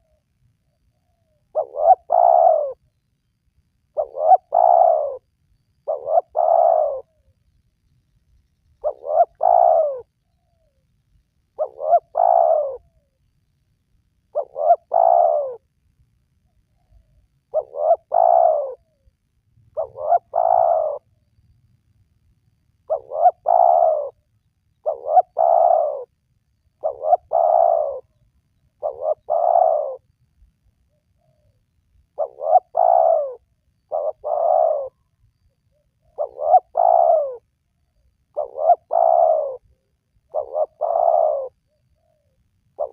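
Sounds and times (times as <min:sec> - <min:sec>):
dove cooing: 0:00.0 - 0:00.2, 0:01.0 - 0:02.9, 0:03.9 - 0:07.4, 0:08.8 - 0:10.8, 0:11.6 - 0:13.2, 0:14.3 - 0:15.7, 0:16.7 - 0:19.1, 0:19.7 - 0:21.1, 0:22.9 - 0:26.2, 0:26.8 - 0:30.1, 0:30.9 - 0:42.9.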